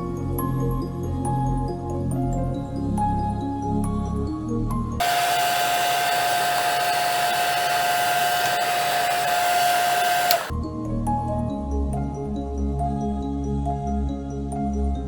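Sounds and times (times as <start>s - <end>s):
electric blower motor whine: 5.0s - 10.5s.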